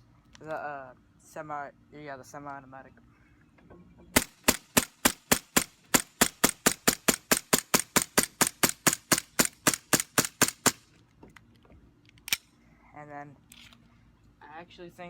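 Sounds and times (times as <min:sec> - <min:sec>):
airsoft pistol shots: 0:04.2 - 0:10.8.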